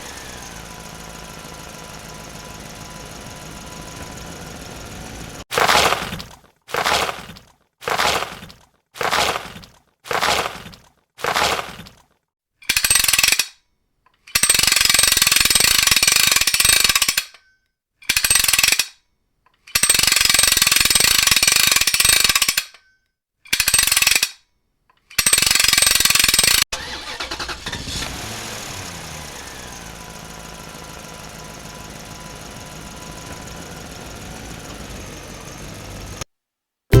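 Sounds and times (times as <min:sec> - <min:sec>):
engine running: 0:00.0 - 0:05.5, 0:26.8 - 0:36.3
hammer drill bursts: 0:12.7 - 0:13.4, 0:14.3 - 0:17.3, 0:19.7 - 0:22.6, 0:23.5 - 0:24.3, 0:25.1 - 0:28.6.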